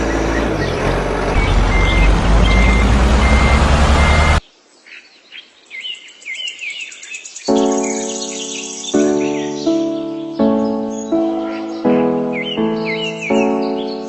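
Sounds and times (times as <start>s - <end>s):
loud engine running: 0.0s - 4.4s
faint bird chirps: 0.0s - 14.0s.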